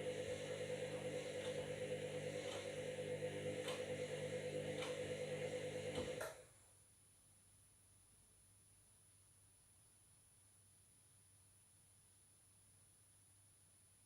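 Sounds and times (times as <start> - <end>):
washing machine motor whine: 0.0 - 6.4.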